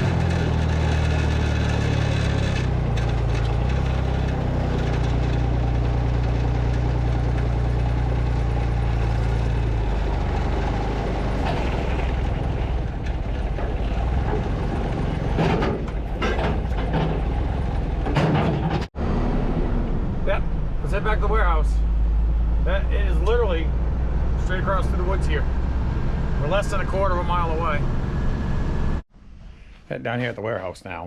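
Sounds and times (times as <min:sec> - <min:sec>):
truck engine running: 0:00.0 - 0:29.0
short knocks: 0:11.4 - 0:18.9.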